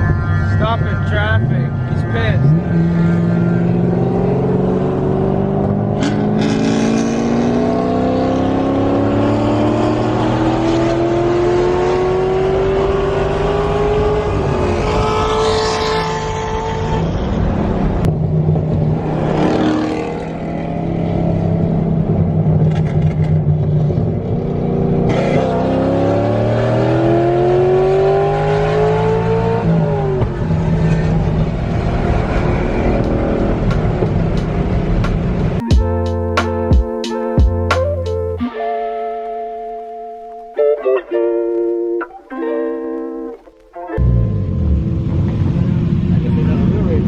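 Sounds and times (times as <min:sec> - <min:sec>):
car engine accelerating hard: 0:00.0 - 0:35.6
cars passing by: 0:00.0 - 0:35.6, 0:44.0 - 0:47.0.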